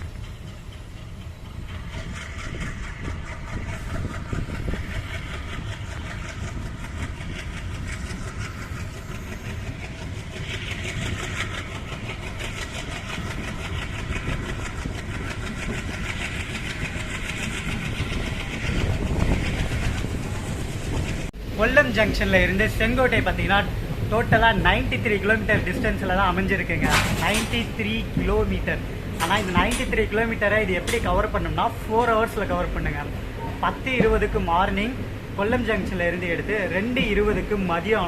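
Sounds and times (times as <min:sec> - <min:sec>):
train wheels rumbling on track: 0:00.0 - 0:38.0
rattling clatter: 0:24.2 - 0:34.4.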